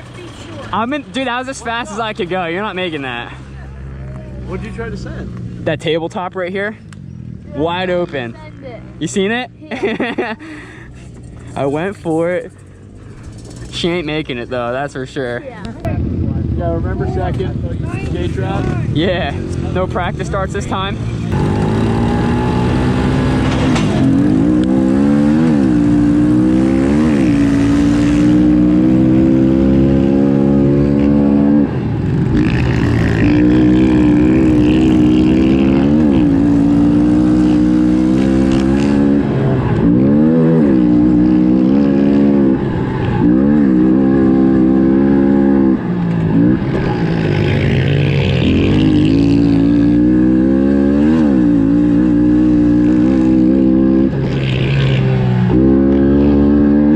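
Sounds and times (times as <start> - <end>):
pit bike engine revving: 18.0 - 56.9.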